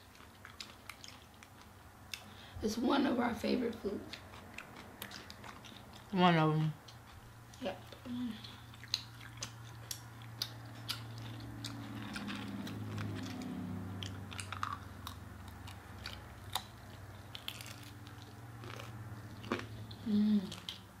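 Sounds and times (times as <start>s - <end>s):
chewing and crunching: 0.0s - 2.4s, 3.7s - 21.0s
steady low hum: 0.0s - 21.0s
mouth clicks and crackles: 7.9s - 19.0s.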